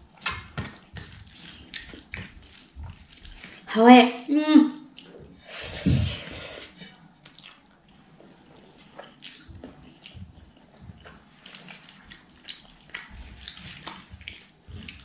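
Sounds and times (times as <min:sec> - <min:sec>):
wet chewing with lips smacking: 0:00.0 - 0:03.7, 0:04.9 - 0:05.4, 0:06.7 - 0:15.0
fingers squishing through rice: 0:00.1 - 0:03.7, 0:07.2 - 0:15.0.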